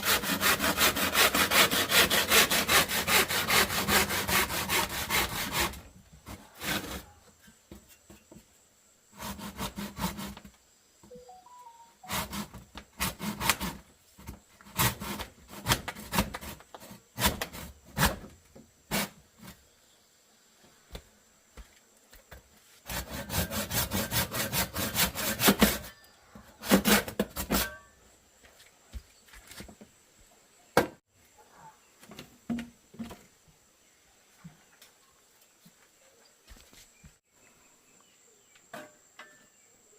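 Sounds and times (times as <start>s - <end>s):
hand saw on wood: 0.0s - 7.2s, 9.2s - 10.5s, 12.0s - 13.8s, 14.6s - 18.3s, 18.9s - 19.2s, 22.8s - 25.9s, 26.6s - 27.8s.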